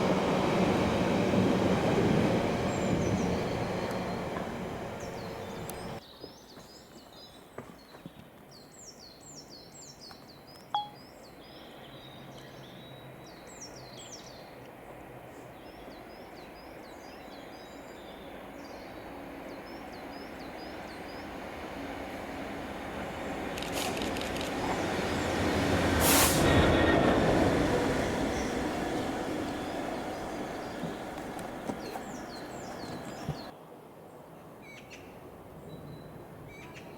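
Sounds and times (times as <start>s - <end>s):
passing train: 0.0s - 6.0s, 11.7s - 33.9s
small birds chirping: 2.4s - 14.5s, 27.5s - 33.5s
short beep with a click: 10.8s - 11.0s.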